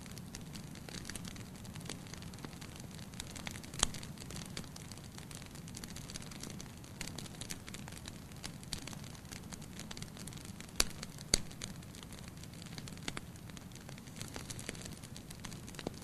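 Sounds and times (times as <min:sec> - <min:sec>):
fire crackling: 0:00.0 - 0:16.0
low rumble of flames: 0:00.0 - 0:16.0.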